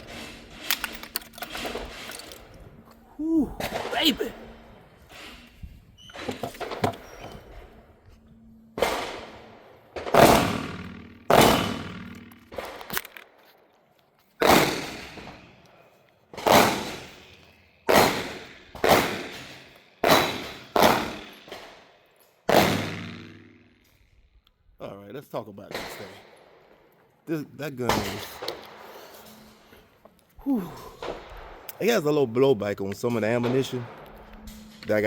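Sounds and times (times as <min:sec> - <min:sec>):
gunshots with echo: 0:03.4 - 0:05.3, 0:08.8 - 0:12.9, 0:14.4 - 0:15.5, 0:16.4 - 0:17.3, 0:17.9 - 0:21.8, 0:22.5 - 0:23.9.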